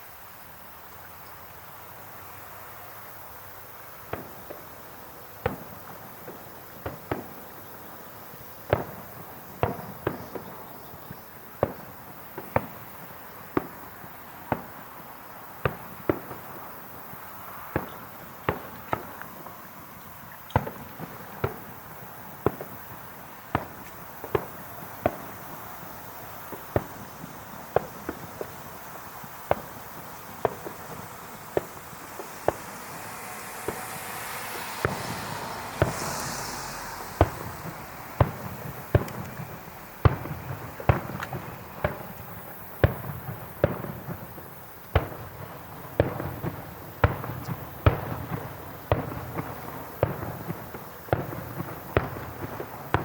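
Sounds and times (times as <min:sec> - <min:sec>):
background hiss: 0:00.0 - 0:53.0
fireworks bangs: 0:03.9 - 0:53.0.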